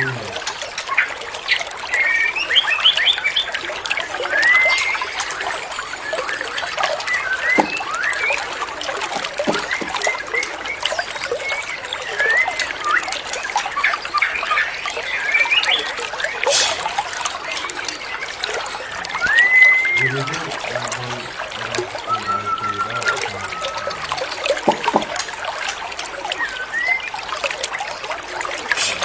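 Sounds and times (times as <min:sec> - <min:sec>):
birdsong chirps and whistles: 0:00.0 - 0:25.4, 0:26.2 - 0:27.5
water trickling: 0:00.0 - 0:29.0.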